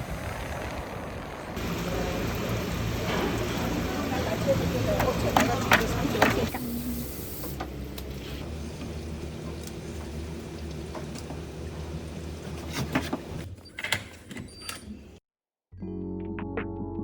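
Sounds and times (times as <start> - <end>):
car engine hum and road noise: 0.0 - 13.4.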